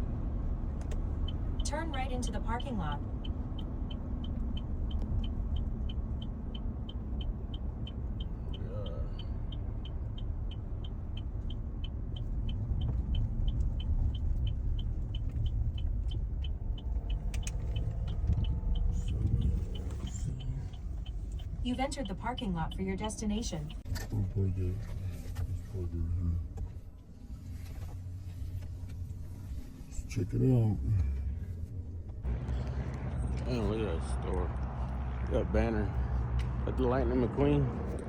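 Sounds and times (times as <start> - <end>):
car cabin engine rumble: 0.0 - 38.0
turn signal clicking: 0.4 - 23.9.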